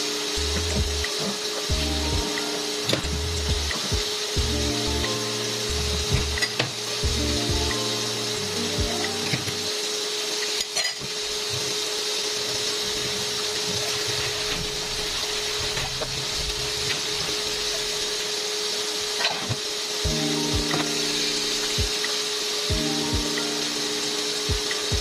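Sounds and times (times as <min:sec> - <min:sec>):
chicken sizzling in oil: 0:00.0 - 0:25.0
steady tone: 0:20.1 - 0:22.1.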